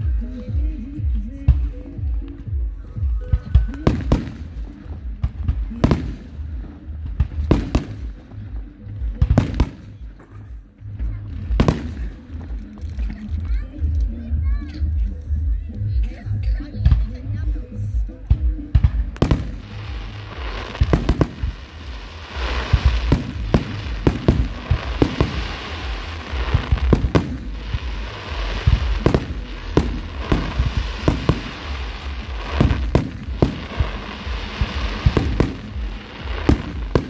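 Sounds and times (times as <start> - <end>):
rumble and hiss: 0.0 - 37.0
fireworks bangs: 3.2 - 8.4, 9.2 - 10.1, 11.4 - 12.5, 18.3 - 37.0.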